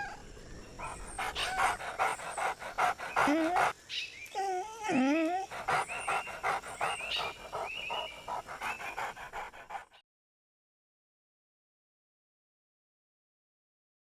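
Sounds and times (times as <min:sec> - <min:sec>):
dog whining: 0:00.8 - 0:03.7, 0:04.3 - 0:09.8
dog panting: 0:00.8 - 0:03.8, 0:05.4 - 0:10.0.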